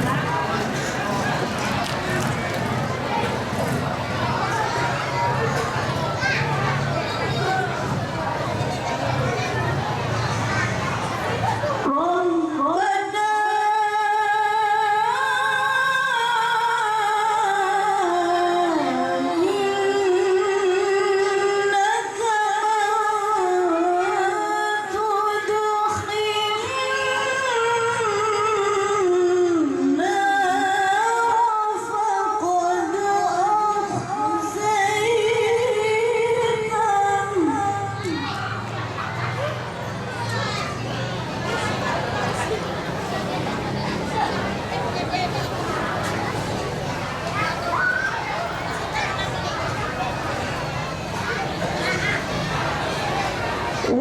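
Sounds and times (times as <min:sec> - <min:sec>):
woman reciting melodically: 0:11.8 - 0:38.7.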